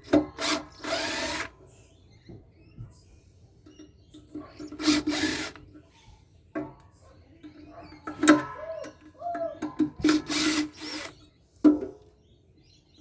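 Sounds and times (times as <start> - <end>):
power drill whirring: 0.1 - 1.5, 4.6 - 5.6, 10.0 - 11.2.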